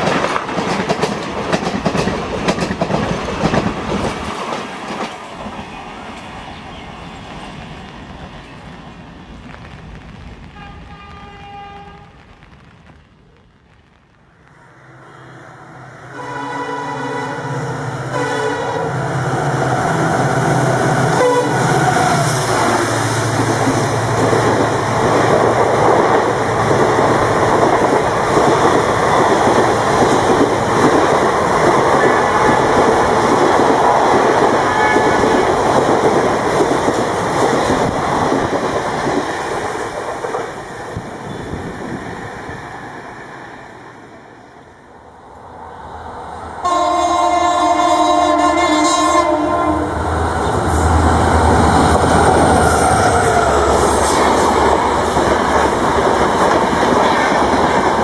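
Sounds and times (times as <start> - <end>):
train wheels clattering on rails: 0.0 - 8.7, 21.0 - 42.5, 50.5 - 58.0
locomotive horn: 10.6 - 12.2, 14.9 - 19.0, 21.1 - 22.2, 34.7 - 35.6, 46.6 - 50.6.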